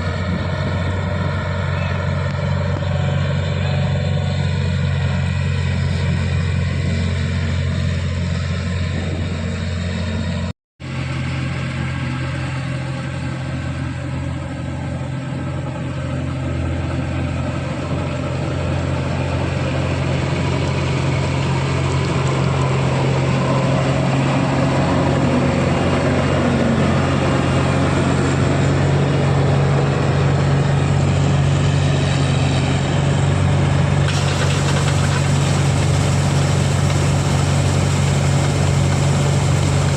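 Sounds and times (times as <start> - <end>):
diesel engine humming: 0.0 - 39.9.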